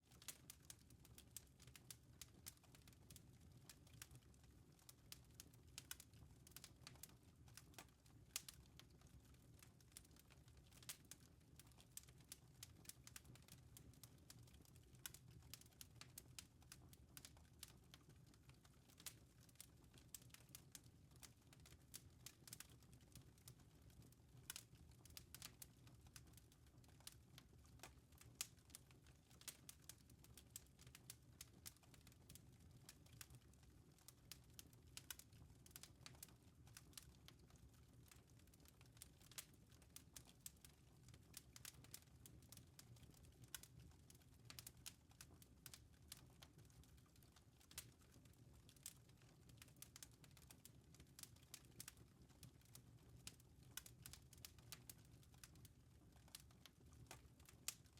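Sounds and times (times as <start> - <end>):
wood fire crackling: 0.0 - 57.9.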